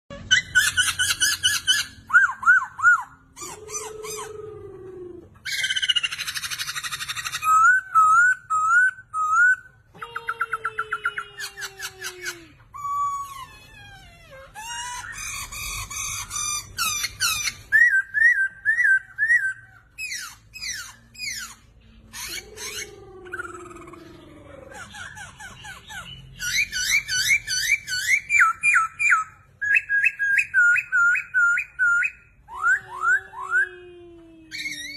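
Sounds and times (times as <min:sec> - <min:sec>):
harsh rasping bird calls: 0:10.4 - 0:32.4.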